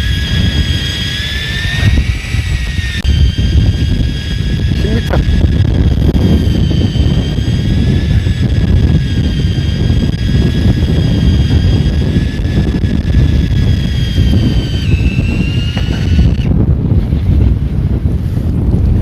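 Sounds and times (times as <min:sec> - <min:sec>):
high-pitched whine: 0:00.0 - 0:16.7
boat engine drone: 0:00.0 - 0:19.0
wind buffeting microphone: 0:00.0 - 0:19.0.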